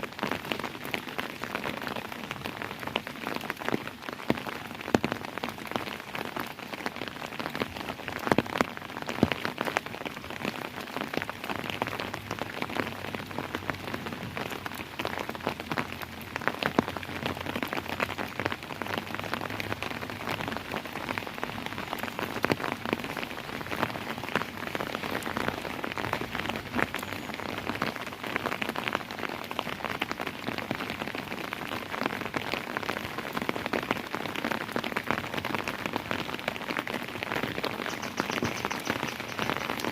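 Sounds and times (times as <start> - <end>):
rain pattering on hard surface: 0.0 - 39.9
loud water drips: 37.6 - 39.9.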